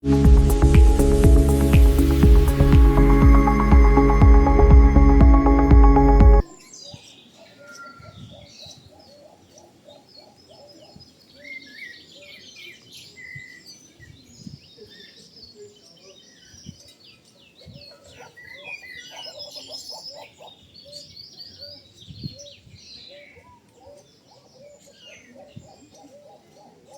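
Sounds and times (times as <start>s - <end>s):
birds twittering: 6.6s - 26.9s.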